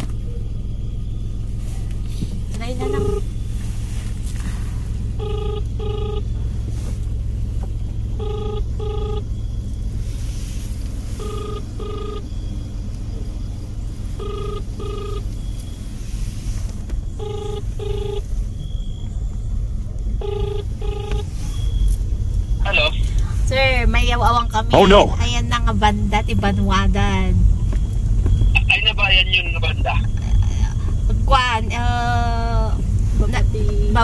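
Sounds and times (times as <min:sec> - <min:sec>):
low vehicle rumble: 0:00.0 - 0:34.0
phone ringback tone: 0:02.8 - 0:03.4, 0:05.1 - 0:06.4, 0:08.1 - 0:09.4, 0:11.1 - 0:12.6, 0:14.1 - 0:15.6, 0:17.1 - 0:18.3, 0:20.2 - 0:21.8.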